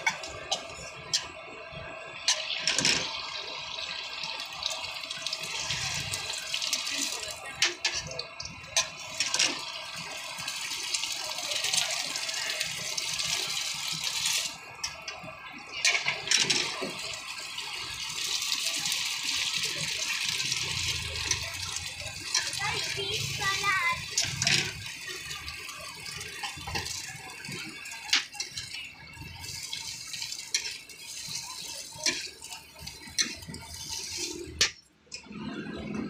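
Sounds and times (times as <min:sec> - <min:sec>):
patty sizzling in oil: 0:17.4 - 0:34.7.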